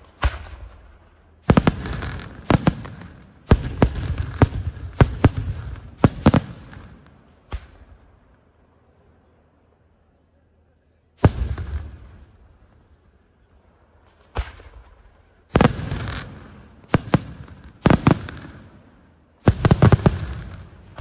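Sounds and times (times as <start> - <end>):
firework bangs: 0.0 - 8.4, 11.2 - 13.0, 13.8 - 21.0
firework rumble: 11.2 - 21.0.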